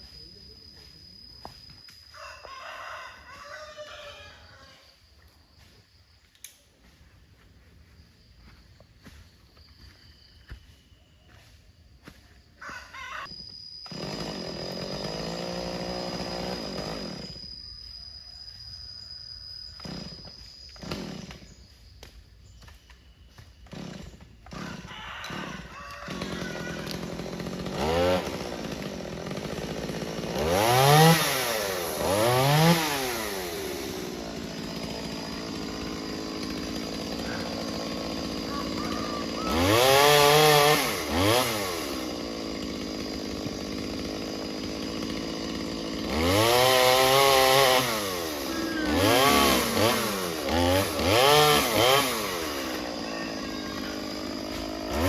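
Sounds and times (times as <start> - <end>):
chainsaw revving: 13.9 - 17.4, 19.8 - 20.2, 20.8 - 21.6, 23.7 - 55.0.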